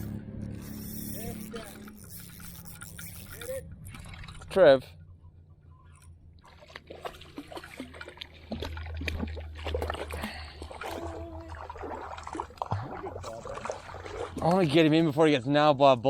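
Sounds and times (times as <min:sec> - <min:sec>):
water splashing and trickling: 0:00.5 - 0:05.0, 0:06.2 - 0:15.7
fish thrashing at surface: 0:06.5 - 0:14.6.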